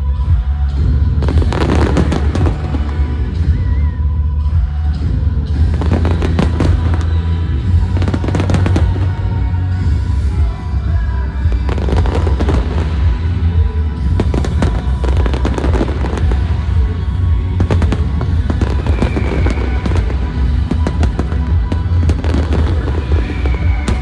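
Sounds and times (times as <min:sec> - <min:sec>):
loud music with heavy bass: 0:00.0 - 0:24.0
fireworks cracking and popping: 0:00.9 - 0:03.7, 0:05.6 - 0:10.4, 0:11.5 - 0:24.0.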